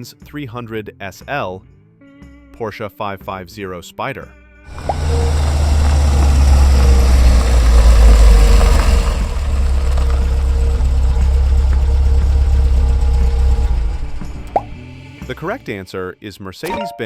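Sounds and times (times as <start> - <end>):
car engine idling: 4.7 - 15.8.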